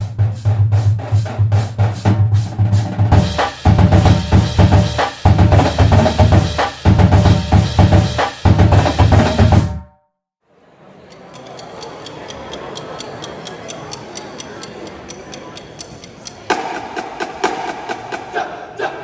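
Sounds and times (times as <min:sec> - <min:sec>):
snare and bass drums playing: 0:00.0 - 0:09.8, 0:16.5 - 0:18.5.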